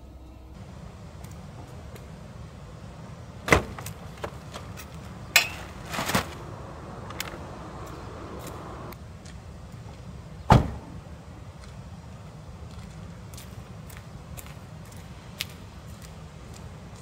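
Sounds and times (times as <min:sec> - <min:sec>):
rustle: 0:00.6 - 0:17.0
steady low rumble: 0:04.8 - 0:10.3.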